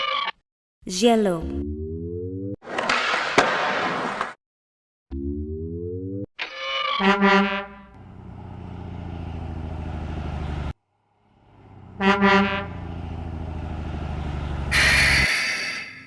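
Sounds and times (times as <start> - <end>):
truck horn honking: 7.0 - 8.5, 11.5 - 13.4, 14.4 - 15.5
truck engine running: 7.8 - 15.4.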